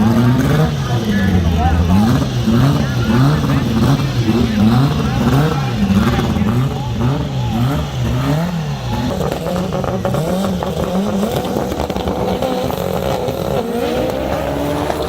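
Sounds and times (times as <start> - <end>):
car engine revving: 0.0 - 15.0
exhaust crackle: 0.0 - 15.0.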